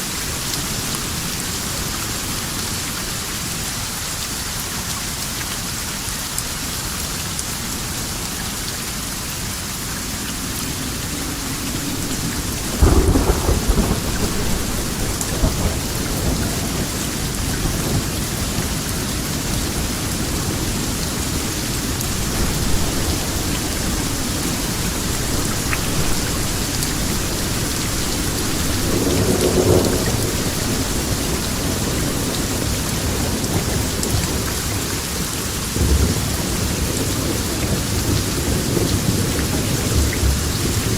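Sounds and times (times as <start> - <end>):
heavy rain: 0.0 - 40.9
thunder clap and rumble: 10.3 - 40.9.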